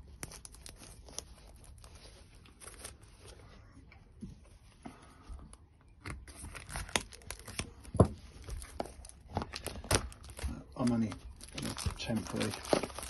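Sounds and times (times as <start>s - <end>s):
hands handling plastic parts: 6.1s - 13.0s.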